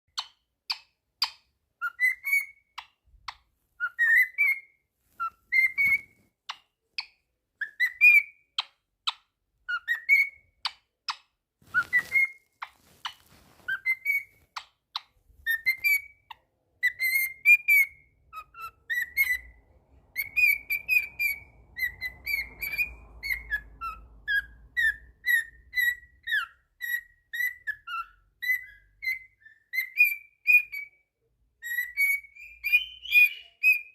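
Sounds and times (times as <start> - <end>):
cockatiel whistling and chirping: 0.1 - 33.9.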